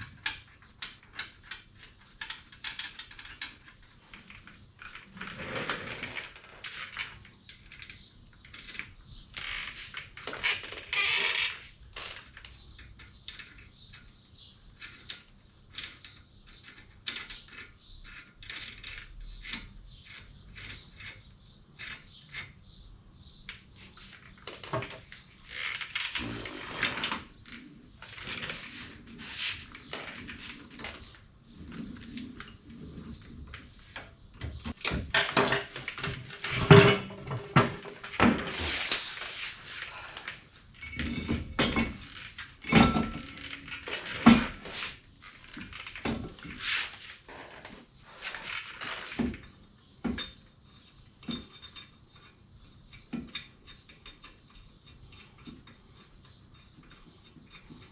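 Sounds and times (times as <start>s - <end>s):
metal tools clinking and scraping: 34.8s - 57.9s.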